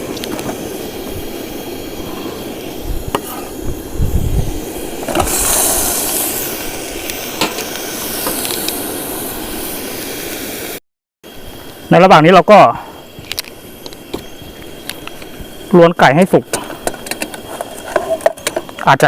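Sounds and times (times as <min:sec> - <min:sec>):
paste sizzling in a pot: 0:00.0 - 0:18.8
utensil scraping a pot: 0:16.8 - 0:18.7.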